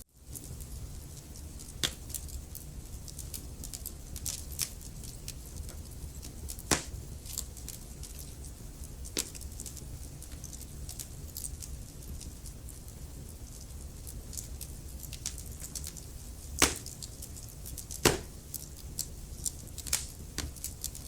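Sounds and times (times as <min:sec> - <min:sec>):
wood fire crackling: 0:00.0 - 0:21.0
low rumble of flames: 0:00.1 - 0:21.0
loud fire pops: 0:01.6 - 0:02.4, 0:05.7 - 0:07.5, 0:15.1 - 0:18.7, 0:19.4 - 0:21.0.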